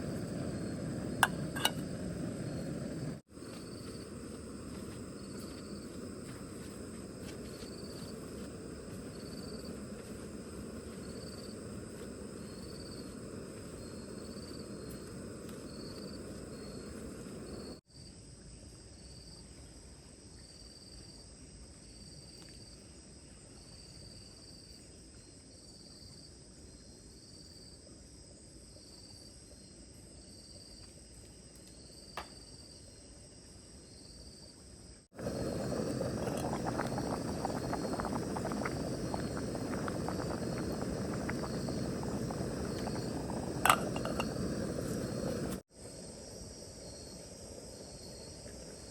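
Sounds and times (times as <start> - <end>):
loud crackling noise: 0.0 - 3.2, 35.2 - 45.6
outdoor hiss: 0.0 - 17.8, 35.1 - 48.9
insects chirping: 0.0 - 19.7, 20.3 - 48.9.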